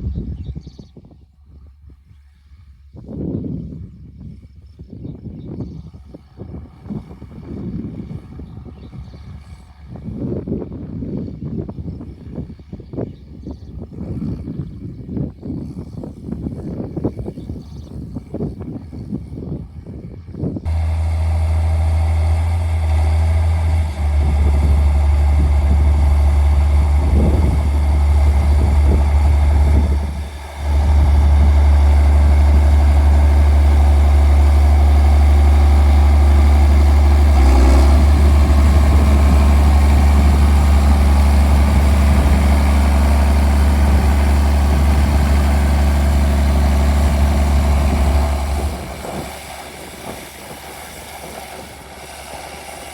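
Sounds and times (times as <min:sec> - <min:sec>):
tractor diesel exhaust drone: 0:20.6 - 0:52.9.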